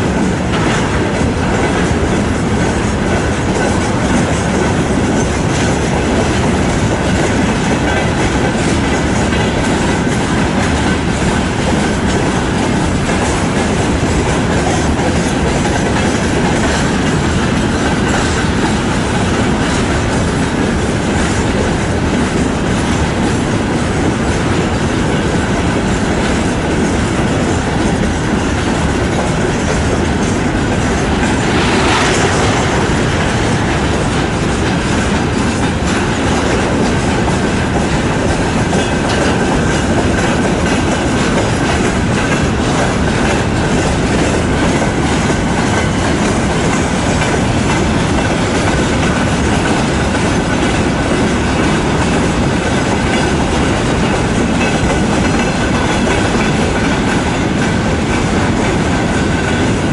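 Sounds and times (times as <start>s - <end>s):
freight train wheels clattering: 0.0s - 59.9s.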